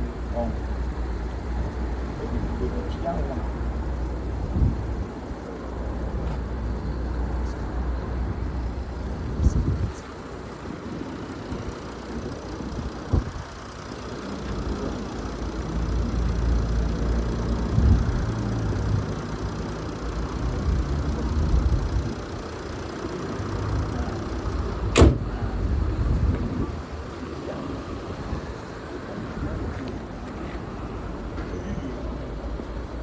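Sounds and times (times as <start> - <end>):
car engine rumble: 0.0 - 33.0
loud sharp thump: 24.9 - 25.4
sharp knock: 25.0 - 25.2.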